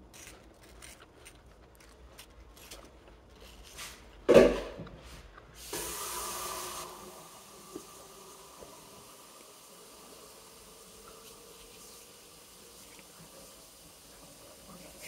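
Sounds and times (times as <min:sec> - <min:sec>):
apple being chewed: 0:00.0 - 0:05.6, 0:11.0 - 0:13.4
hiss: 0:05.6 - 0:15.0.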